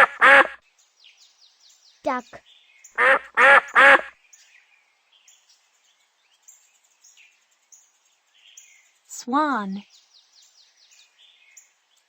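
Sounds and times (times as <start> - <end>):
duck quacking: 0.0 - 0.6, 3.0 - 4.1
small birds chirping: 0.0 - 12.0.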